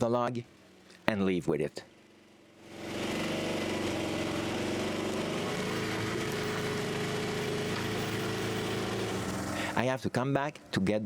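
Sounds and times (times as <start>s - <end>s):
utility vehicle engine running: 2.0s - 9.8s.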